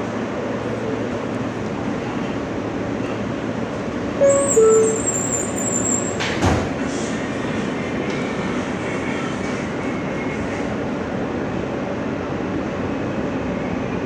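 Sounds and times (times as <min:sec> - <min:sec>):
subway car rumble: 0:00.0 - 0:14.0
two-tone door chime: 0:04.2 - 0:05.6.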